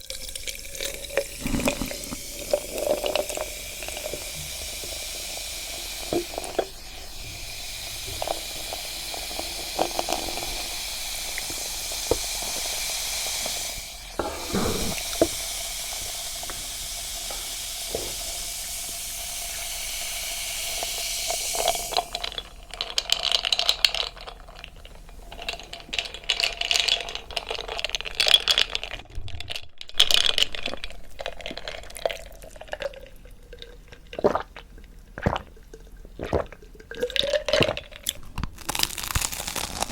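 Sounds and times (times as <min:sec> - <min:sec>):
steady hiss: 0:00.4 - 0:22.7
crunching and chewing bread: 0:01.4 - 0:02.2, 0:37.6 - 0:39.9.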